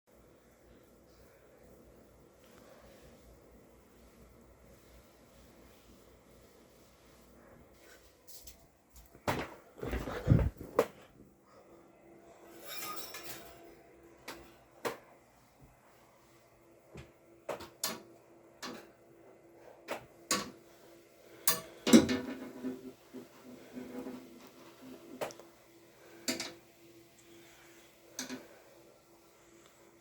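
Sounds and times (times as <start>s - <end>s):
faint steady hum: 0.1s - 30.0s
fan parts clicking and clattering: 12.6s - 15.1s, 17.5s - 19.0s, 19.8s - 20.6s, 21.3s - 25.4s, 26.0s - 26.6s, 28.1s - 28.7s.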